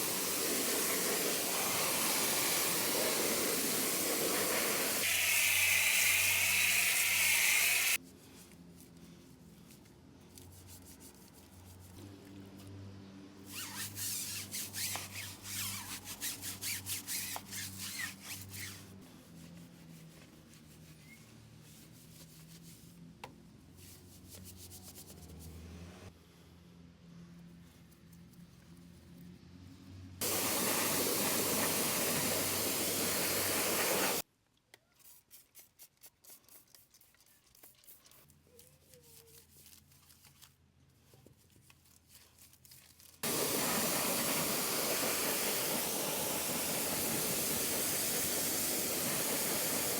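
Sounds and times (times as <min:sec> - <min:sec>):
spray hiss: 0:00.0 - 0:08.0, 0:30.2 - 0:34.2, 0:43.2 - 0:49.9.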